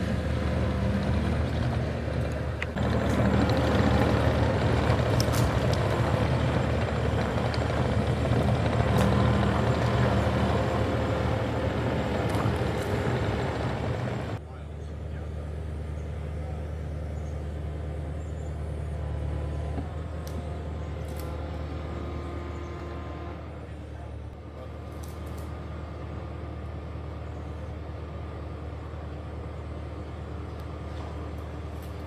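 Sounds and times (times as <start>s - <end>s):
engine humming: 0.0s - 32.0s.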